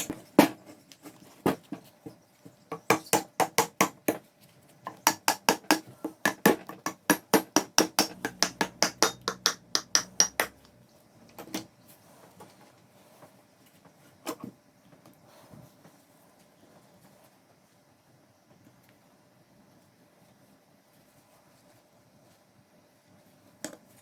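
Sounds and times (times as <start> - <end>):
hammer striking: 5.0 - 10.8.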